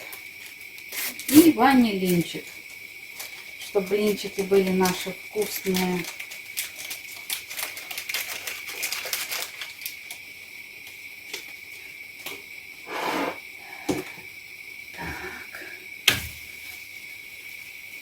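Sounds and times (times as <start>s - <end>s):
spoon scraping a bowl: 12.9s - 13.4s.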